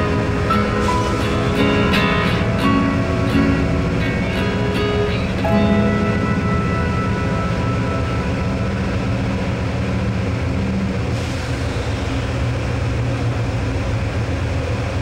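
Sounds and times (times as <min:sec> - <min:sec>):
low hum: 0:00.0 - 0:13.9
train rumble from inside: 0:00.0 - 0:15.0
hiss: 0:11.1 - 0:12.6.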